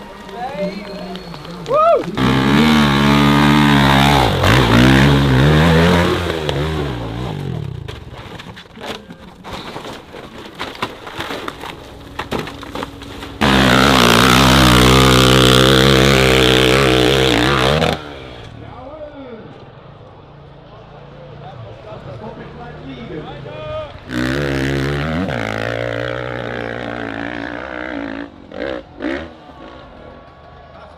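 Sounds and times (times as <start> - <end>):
dirt bike engine revving: 2.2 - 7.9, 12.0 - 18.6, 24.0 - 30.0.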